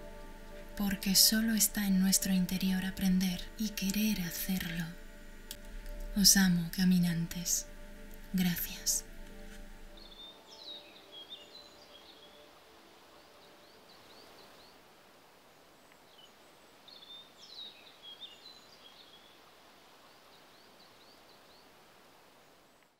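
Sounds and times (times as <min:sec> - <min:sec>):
outdoor background hiss: 0:00.0 - 0:22.9
songbird singing faintly: 0:00.0 - 0:22.9.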